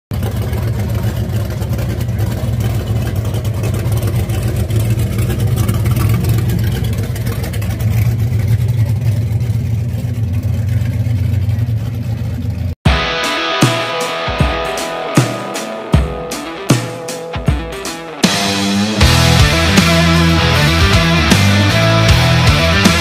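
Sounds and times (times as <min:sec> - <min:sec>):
car engine exhaust rumble: 0:00.1 - 0:12.8, 0:18.5 - 0:23.0.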